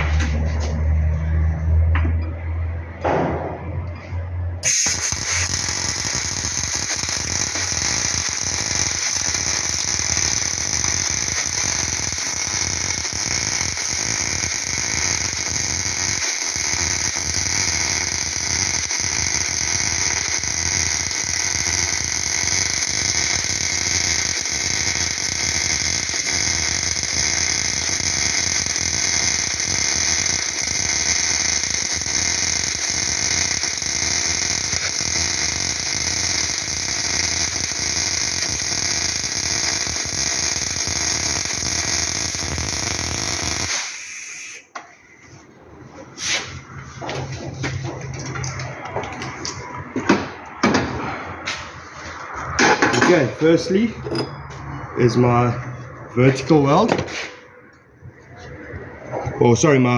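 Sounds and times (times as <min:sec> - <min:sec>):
welding arc crackling hiss: 0:04.6 - 0:44.8, 0:46.2 - 0:50.4.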